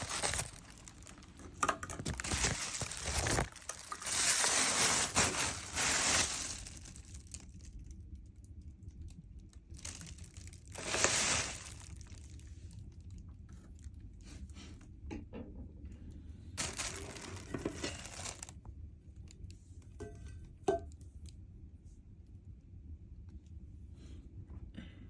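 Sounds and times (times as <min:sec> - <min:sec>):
crisp shells crunching while eaten: 0:00.0 - 0:07.8, 0:09.7 - 0:12.4, 0:16.6 - 0:18.5.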